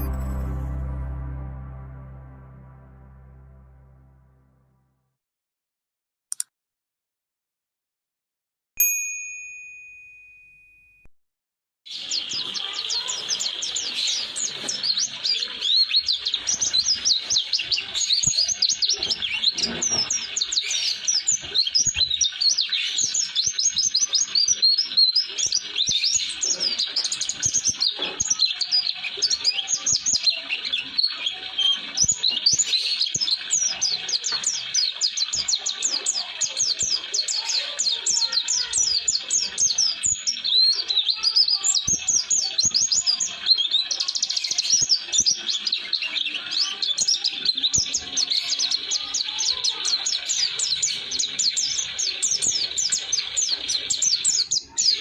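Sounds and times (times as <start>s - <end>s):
bird singing rapid chirps: 11.9s - 55.0s.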